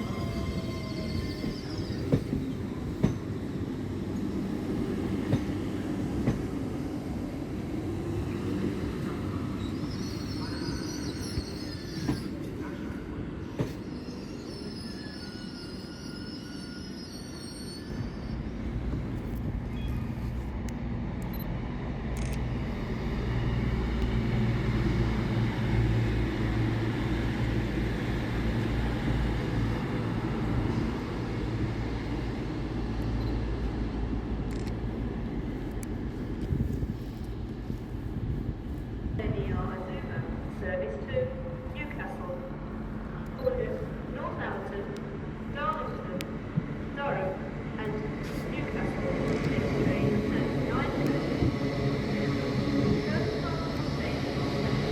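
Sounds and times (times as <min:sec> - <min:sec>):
train wheels squealing: 0:00.0 - 0:03.6, 0:09.3 - 0:18.7
train engine low hum: 0:00.0 - 0:54.9.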